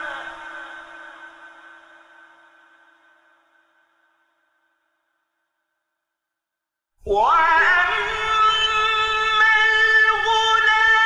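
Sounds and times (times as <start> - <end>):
person reciting: 0.0 - 2.2, 7.0 - 11.0.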